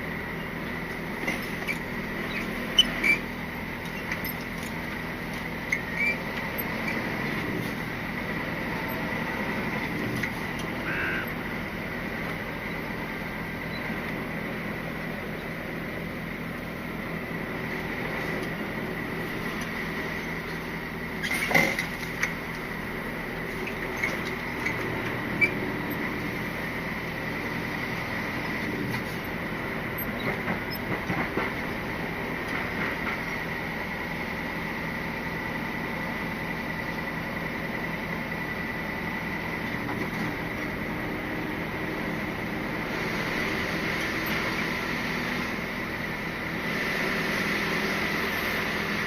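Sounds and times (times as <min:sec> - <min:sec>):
truck engine and road noise: 0:00.0 - 0:49.0
short high squeaks: 0:01.6 - 0:03.3, 0:05.7 - 0:07.0
thin steady whine: 0:07.8 - 0:21.2.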